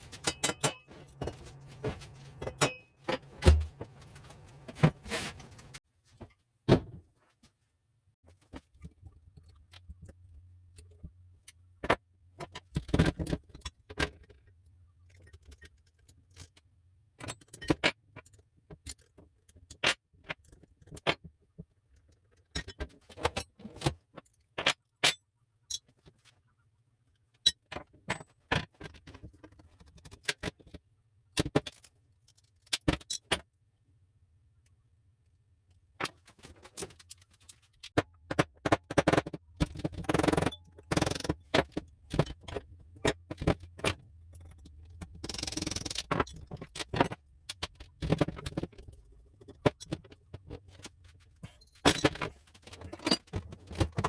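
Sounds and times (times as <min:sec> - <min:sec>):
hand tools and metal parts clinking: 0:00.0 - 0:05.8, 0:36.0 - 0:54.0.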